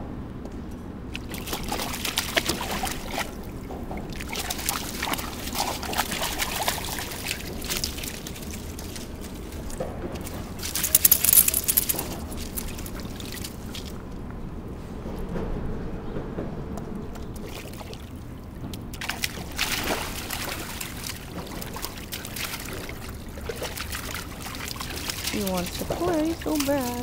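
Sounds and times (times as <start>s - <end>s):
dog splashing in water: 1.2s - 14.0s, 18.9s - 27.0s
small sharp clinks: 10.8s - 12.7s.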